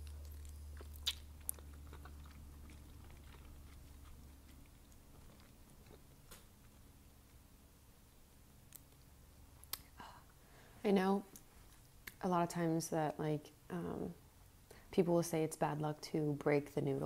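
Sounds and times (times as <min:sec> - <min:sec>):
chewing noodles: 0:00.0 - 0:07.5.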